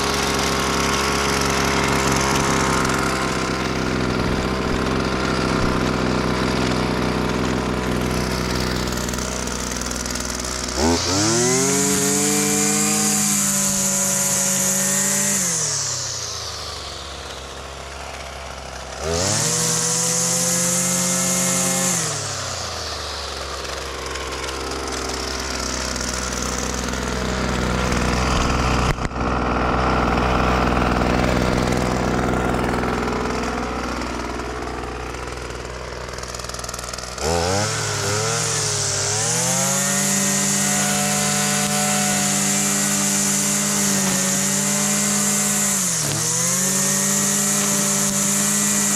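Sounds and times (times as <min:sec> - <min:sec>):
string trimmer engine revving: 0:00.0 - 0:48.9.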